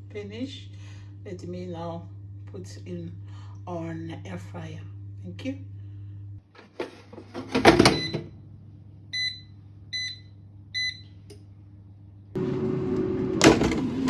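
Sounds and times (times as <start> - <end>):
air fryer fan whirring: 0.0 - 14.0
basket clattering into air fryer: 6.6 - 8.3, 13.4 - 13.9.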